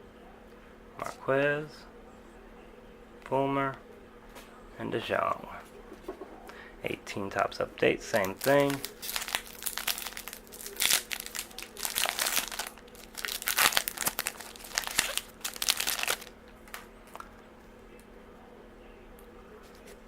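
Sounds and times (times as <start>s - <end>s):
plastic wrapper crinkling: 8.1s - 17.3s.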